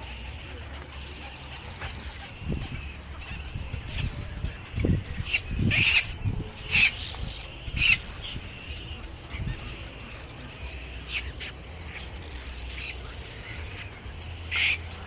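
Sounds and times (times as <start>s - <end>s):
loud harsh bird calls: 0.0s - 15.0s
soft bird calls: 0.0s - 15.0s.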